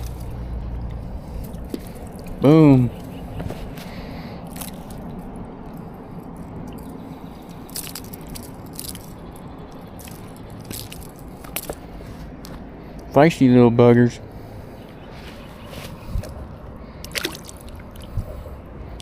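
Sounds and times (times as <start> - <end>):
handling clicks and scrapes: 15.2 - 16.4.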